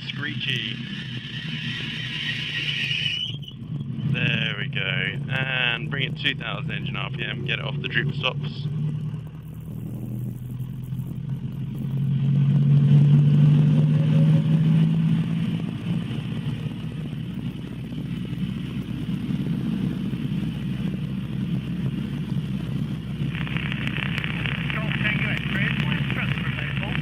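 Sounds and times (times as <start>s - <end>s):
helicopter engine and rotor drone: 0.0s - 2.5s, 15.8s - 27.0s
faint rising whine: 0.0s - 27.0s.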